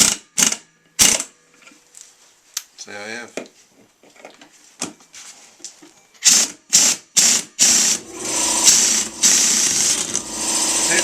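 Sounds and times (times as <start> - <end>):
pneumatic impact wrench: 0.0 - 1.3, 6.2 - 11.0.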